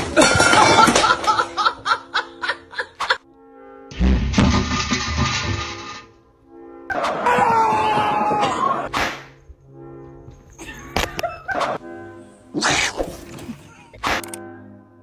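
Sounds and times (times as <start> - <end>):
person laughing: 0.0 - 3.2, 10.6 - 11.9
background music: 0.0 - 15.0.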